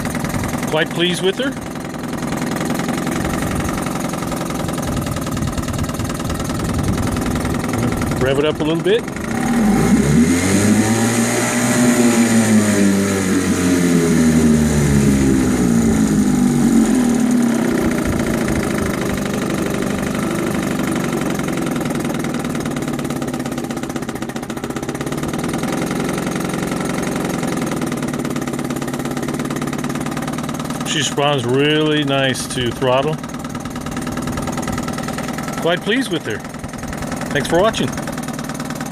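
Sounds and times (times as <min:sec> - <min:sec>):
outboard engine revving and idling: 0:00.0 - 0:38.9.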